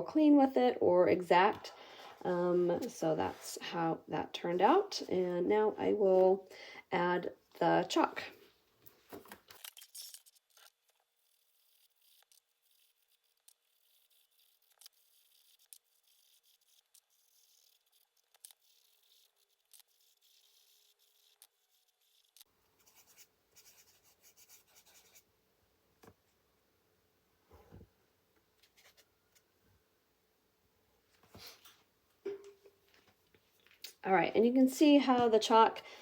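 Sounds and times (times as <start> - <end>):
chalk scratching on paper: 11.2 - 25.2.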